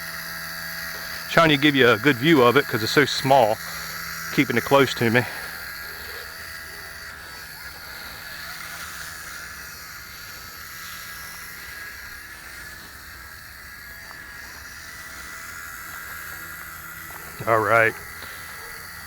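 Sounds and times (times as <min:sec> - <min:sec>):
toy helicopter motor whine: 0:00.0 - 0:19.0.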